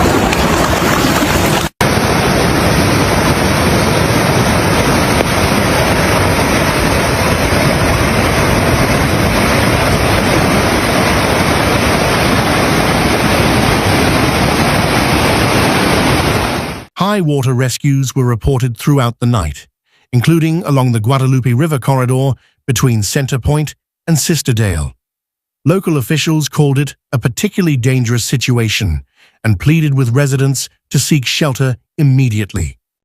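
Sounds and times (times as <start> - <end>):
floodwater rushing: 0.0 - 16.9
wind buffeting microphone: 0.0 - 16.9.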